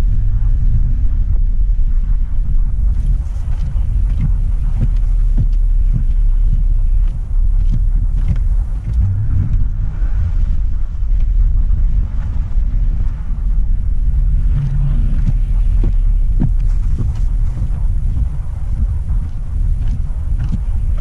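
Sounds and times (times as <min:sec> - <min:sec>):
vehicle engine and road rumble: 0:00.0 - 0:21.0
faint ticks: 0:02.9 - 0:09.8, 0:14.5 - 0:21.0.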